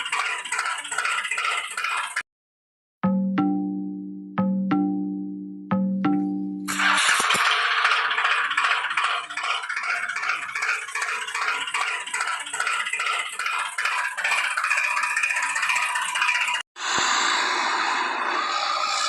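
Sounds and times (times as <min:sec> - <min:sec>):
fast rattling clatter: 0:00.0 - 0:02.2, 0:06.7 - 0:16.6.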